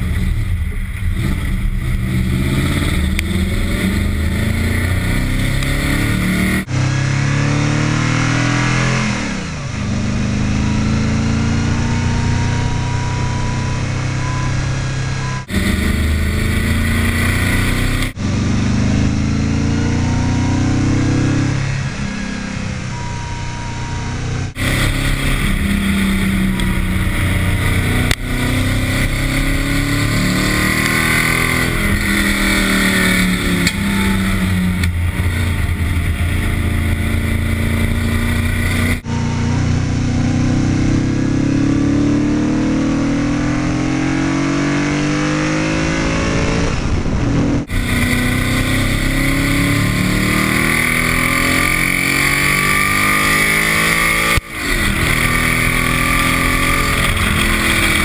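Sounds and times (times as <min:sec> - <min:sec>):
car engine revving: 0:00.0 - 0:58.0
tyre and wind noise: 0:44.7 - 0:58.0.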